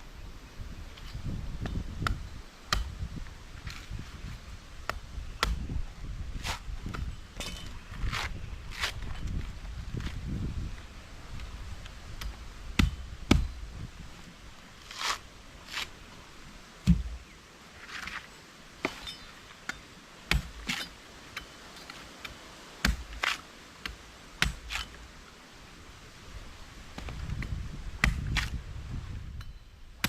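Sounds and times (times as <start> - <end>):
rustling and scraping: 3.2 - 4.5, 6.3 - 12.0, 14.2 - 16.0, 17.8 - 19.6
sharp knocks and thuds: 12.2 - 13.6, 16.8 - 17.2, 22.8 - 23.4, 27.0 - 28.6.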